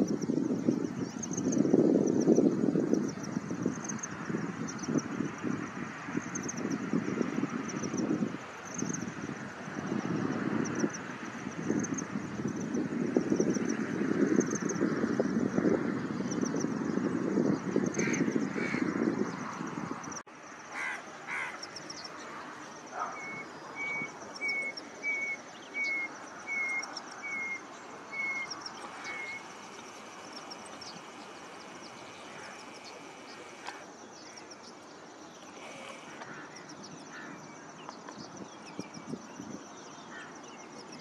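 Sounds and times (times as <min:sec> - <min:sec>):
faint high-pitched bird chirping: 0:20.8 - 0:41.0.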